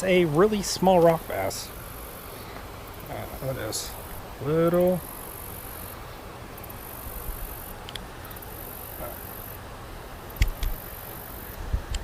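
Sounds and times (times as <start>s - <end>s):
insects singing: 0.0s - 11.6s
outdoor background hiss: 0.0s - 12.0s
faint clicks: 7.8s - 8.1s, 10.3s - 10.8s.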